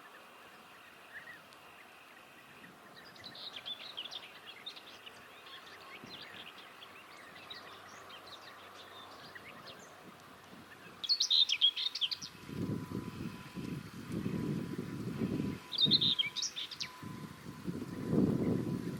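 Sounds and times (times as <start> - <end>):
bird scratchy warbling song: 10.6 - 12.4, 13.7 - 18.9
low rumbling noise: 12.2 - 18.9.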